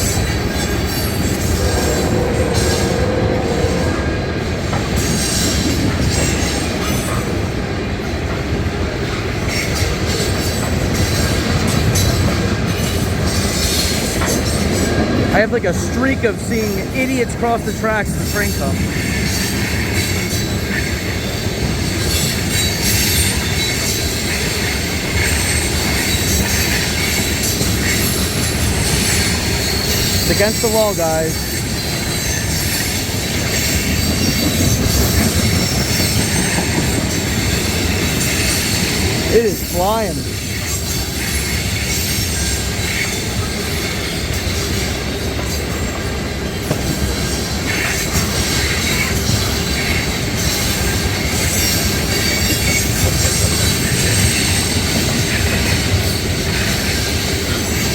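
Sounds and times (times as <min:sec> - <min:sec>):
high wheel squeal: 0:00.0 - 0:07.2, 0:18.2 - 0:44.8
freight train wheels rumbling: 0:00.0 - 0:57.9.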